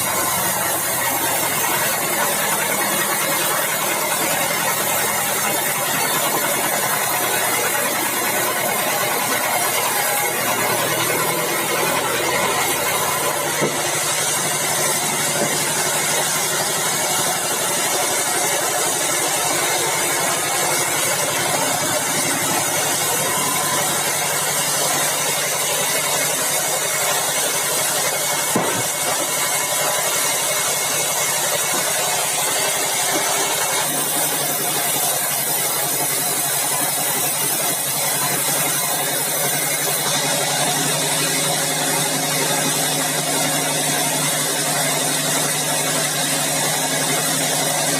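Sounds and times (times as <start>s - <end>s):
bandsaw mill humming: 0.0s - 47.9s
sharp knock: 13.5s - 14.0s, 28.5s - 29.1s.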